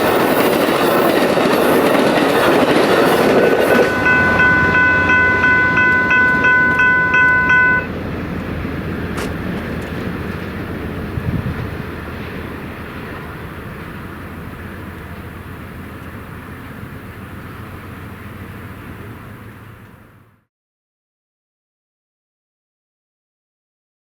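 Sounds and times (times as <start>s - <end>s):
train cars rushing past: 0.0s - 20.4s
electronic crossing bell ringing: 3.6s - 7.9s.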